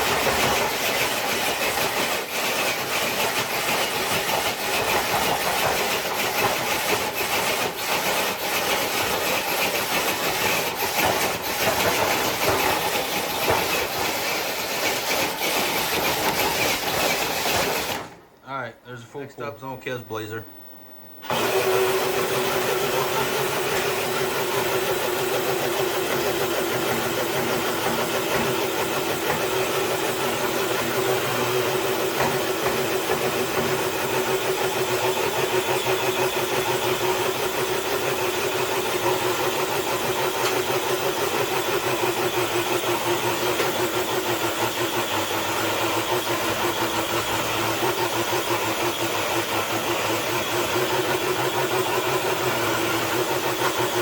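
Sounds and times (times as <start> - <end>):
toy truck motor whining: 0.0 - 18.2.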